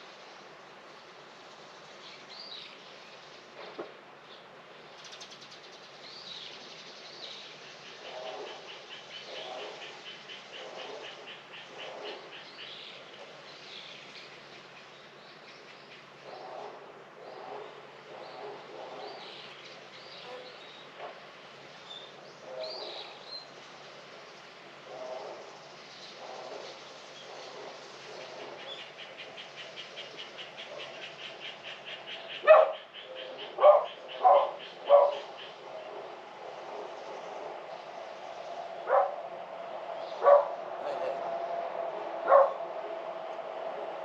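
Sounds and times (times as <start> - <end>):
birds calling: 25.0 - 44.0.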